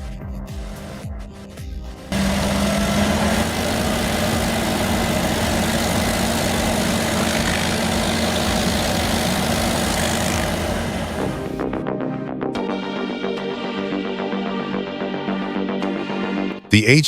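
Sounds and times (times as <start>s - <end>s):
heavy machine running: 0.7s - 1.0s, 2.1s - 11.7s.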